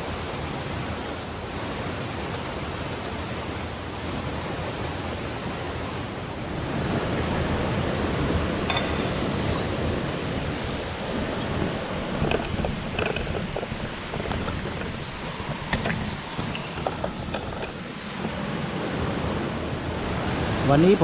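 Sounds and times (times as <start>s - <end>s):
stream rushing over rocks: 0.0s - 21.0s
small clicks and knocks: 12.2s - 18.4s.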